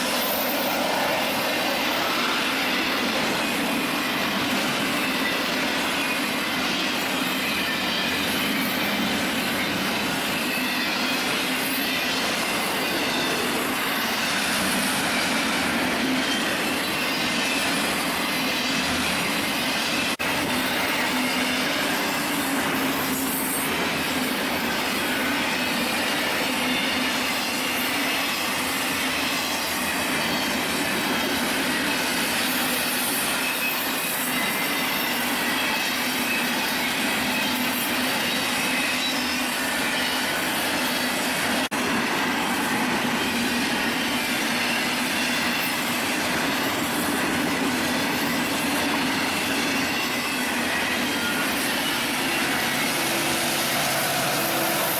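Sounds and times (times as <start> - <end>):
train cars rolling past: 0.0 - 54.9
wheel squeal: 4.8 - 41.7.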